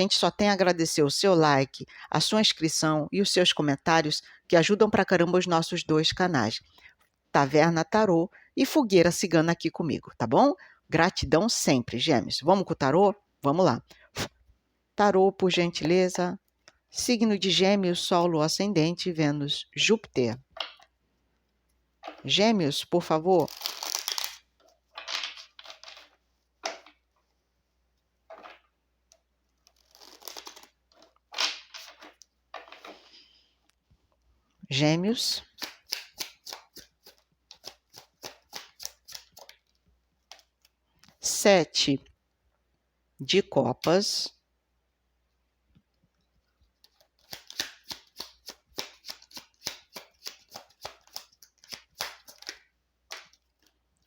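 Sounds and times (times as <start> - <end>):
cards being shuffled: 23.1 - 27.0, 29.6 - 33.1, 35.4 - 40.8, 46.7 - 53.8.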